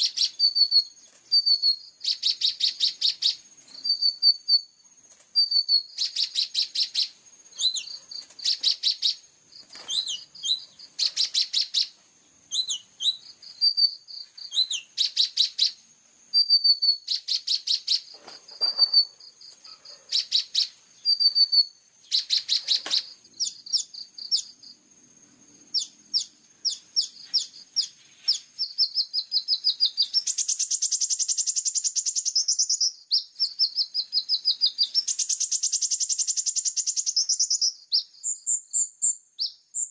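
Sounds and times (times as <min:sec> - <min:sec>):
sliding whistled bird notes: 0:00.0 - 0:04.7, 0:05.4 - 0:09.2, 0:09.8 - 0:15.8, 0:16.4 - 0:19.2, 0:20.1 - 0:24.5
sunbird singing fast trills: 0:00.0 - 0:39.9.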